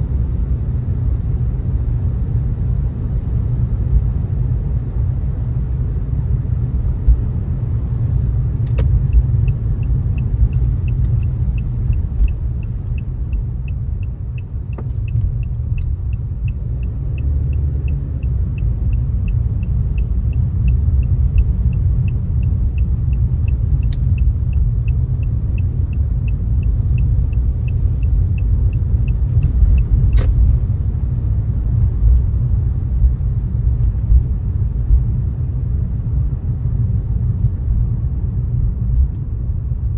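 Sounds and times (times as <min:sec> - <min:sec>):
turn signal ticking: 0:08.0 - 0:30.7.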